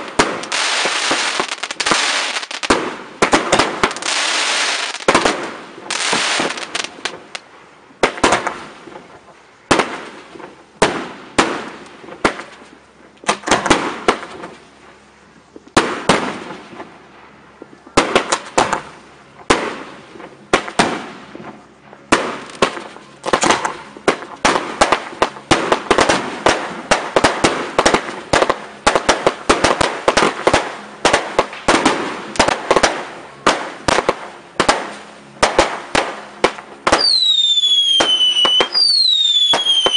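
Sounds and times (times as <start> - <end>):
fireworks bursting with bangs: 0.0 - 7.4, 8.0 - 14.8, 15.5 - 39.9.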